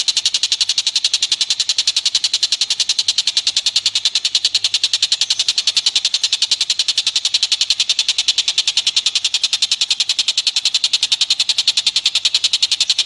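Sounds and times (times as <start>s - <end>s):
high-pitched clicking animal calls: 0.0s - 13.0s.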